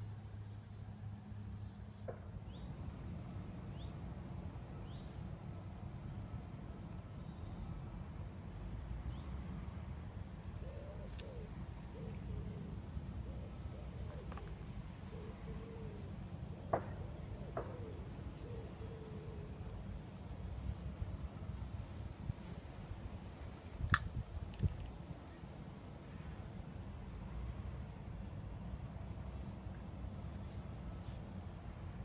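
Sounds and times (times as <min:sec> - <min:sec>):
sharp click: 0:23.8 - 0:24.9.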